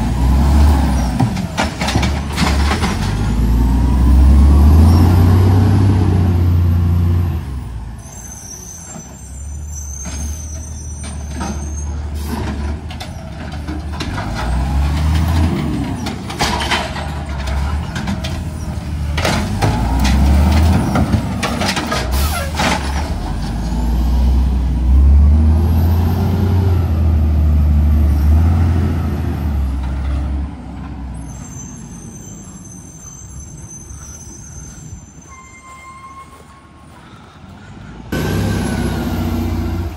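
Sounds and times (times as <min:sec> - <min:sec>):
garbage truck engine revving: 0:00.0 - 0:07.6, 0:13.8 - 0:30.5, 0:38.1 - 0:39.9.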